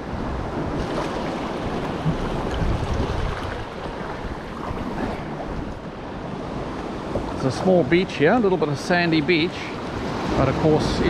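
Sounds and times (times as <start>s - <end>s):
wind buffeting microphone: 0.0s - 7.5s
sea swell washing: 0.0s - 11.0s.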